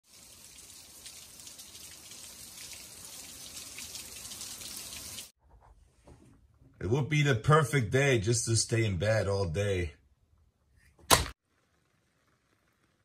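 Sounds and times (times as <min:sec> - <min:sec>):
steady rain falling: 0:00.0 - 0:05.3.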